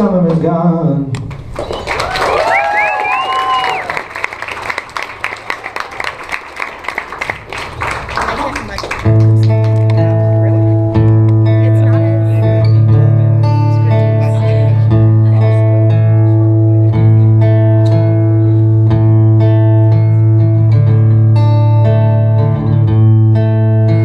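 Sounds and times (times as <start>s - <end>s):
acoustic guitars strumming chords: 9.0s - 24.0s.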